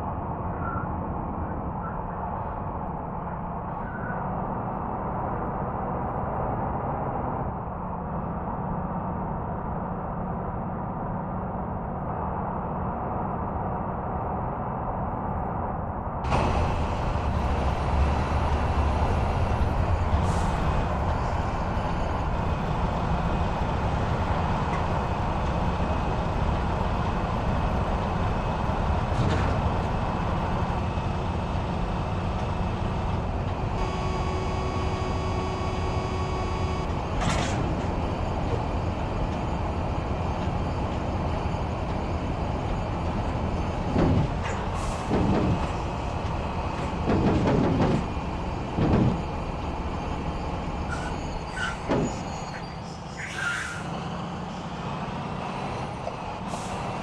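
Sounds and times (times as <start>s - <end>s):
road rumble: 0.0s - 57.0s
truck engine running: 16.2s - 53.0s
held electronic tone: 33.8s - 37.0s
short surges and knocks: 43.3s - 51.2s.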